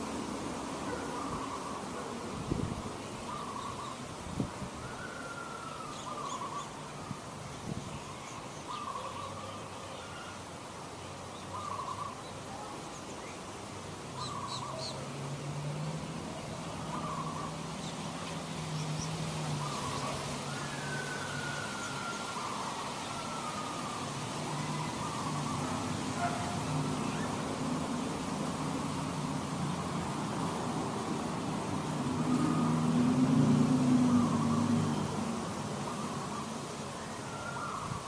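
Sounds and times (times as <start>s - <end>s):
faint bird chirps: 18.7s - 27.4s.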